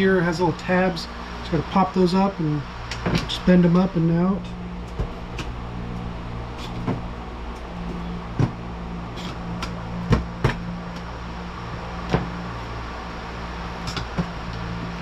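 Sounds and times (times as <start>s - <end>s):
steady low hum: 0.0s - 15.0s
sharp clicks and knocks: 13.8s - 14.7s.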